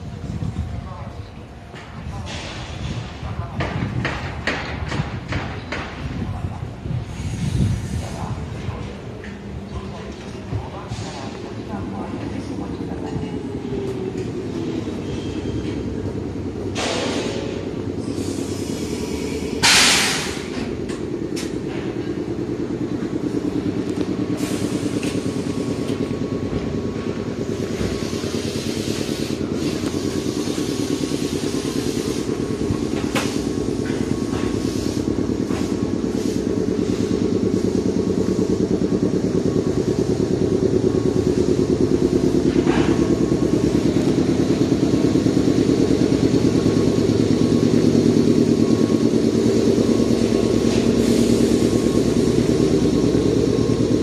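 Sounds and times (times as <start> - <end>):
electric train humming: 6.2 - 54.0
loud hiss: 16.8 - 20.6, 24.4 - 25.8, 27.5 - 33.8, 34.4 - 38.4, 50.0 - 51.8.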